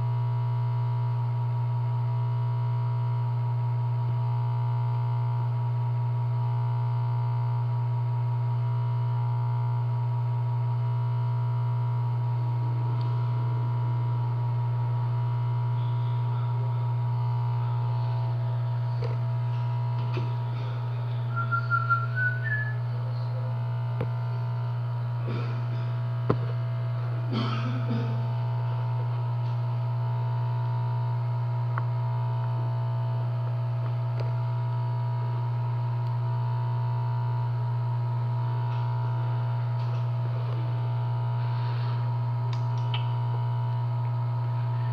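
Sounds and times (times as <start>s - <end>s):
steady low hum: 0.0s - 44.9s
higher whine: 14.3s - 29.2s.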